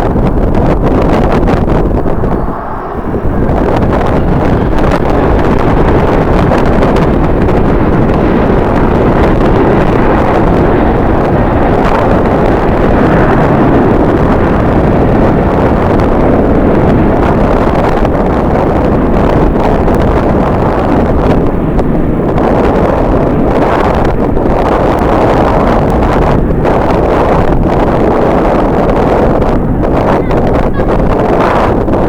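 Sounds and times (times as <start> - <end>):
strong wind on microphone: 0.0 - 32.0.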